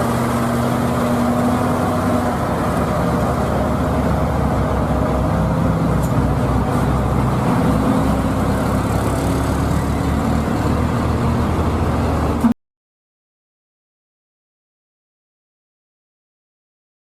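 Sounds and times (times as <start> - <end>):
heavy truck engine running: 0.0 - 12.6.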